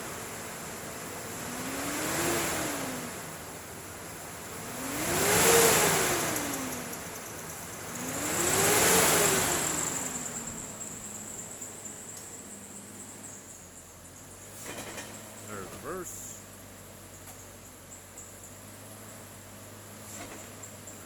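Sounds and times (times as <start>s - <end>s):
car engine revving: 0.8s - 17.3s.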